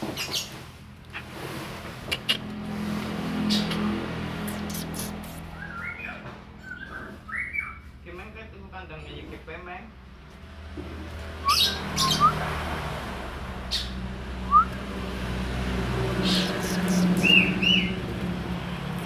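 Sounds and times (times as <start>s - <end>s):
bird chirping: 3.5s - 7.9s, 11.4s - 12.4s, 16.2s - 18.0s.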